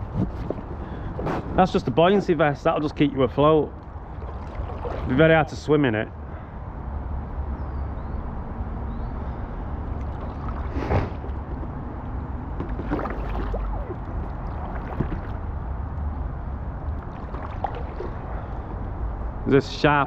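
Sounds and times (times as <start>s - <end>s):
paddle splashing in water: 3.9s - 5.3s, 10.0s - 11.8s, 12.6s - 15.6s, 16.9s - 18.7s.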